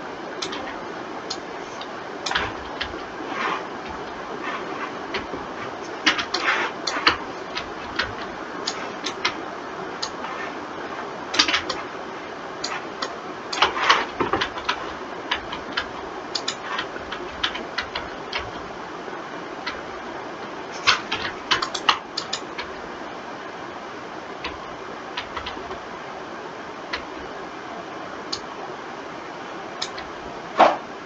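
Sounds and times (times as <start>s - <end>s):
steady hiss: 0.0s - 31.0s
mouse and keyboard clicking: 0.4s - 9.4s, 10.0s - 10.4s, 11.4s - 11.8s, 12.6s - 18.6s, 20.8s - 22.7s, 29.8s - 30.1s.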